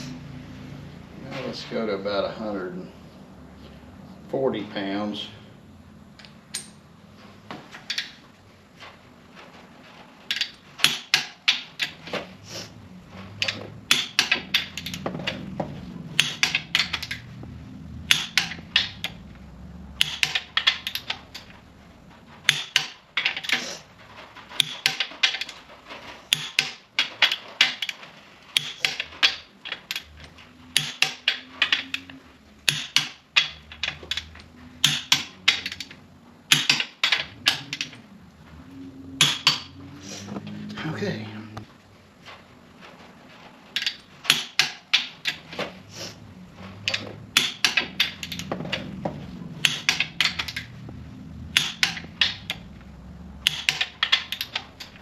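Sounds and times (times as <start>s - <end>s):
torque wrench clicking: 18.0s - 19.2s, 20.0s - 21.5s, 26.3s - 28.0s, 30.7s - 35.9s, 51.5s - 52.6s, 53.4s - 55.0s.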